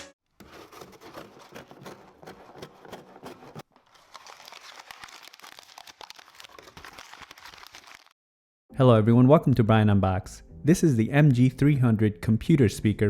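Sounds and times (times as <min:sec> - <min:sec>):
packaging crinkling: 0:00.4 - 0:08.2.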